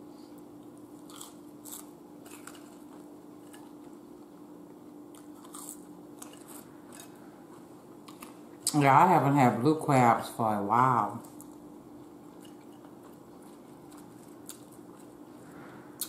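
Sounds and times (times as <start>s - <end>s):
person chewing food: 0.3s - 8.7s, 11.2s - 15.4s.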